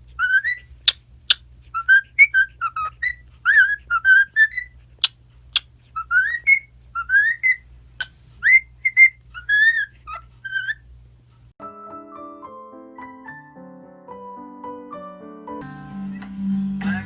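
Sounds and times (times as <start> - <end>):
cockatiel whistling: 0.0 - 7.7, 8.4 - 10.9.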